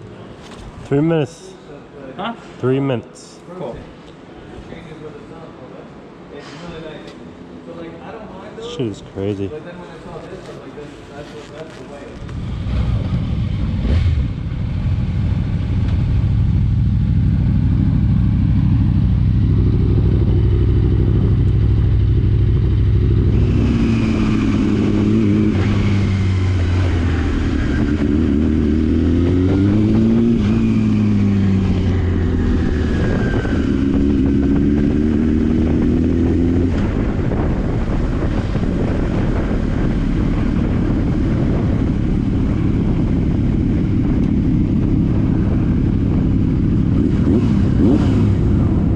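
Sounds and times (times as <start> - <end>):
motorcycle engine revving: 10.5 - 48.9.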